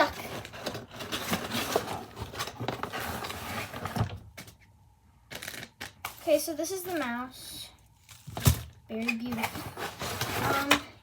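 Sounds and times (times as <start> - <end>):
packaging rustling and scraping: 0.0 - 4.6, 8.0 - 10.9.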